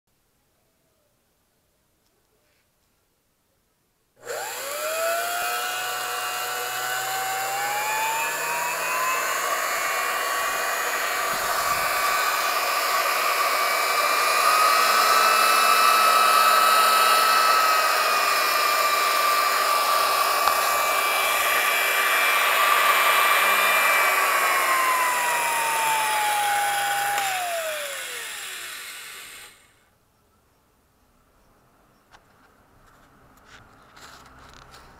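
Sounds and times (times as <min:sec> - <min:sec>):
blender motor whining: 0:04.2 - 0:29.8.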